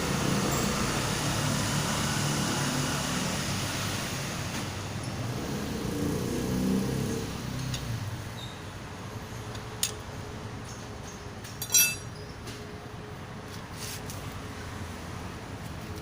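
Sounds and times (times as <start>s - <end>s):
metallic clink: 11.6s - 12.2s.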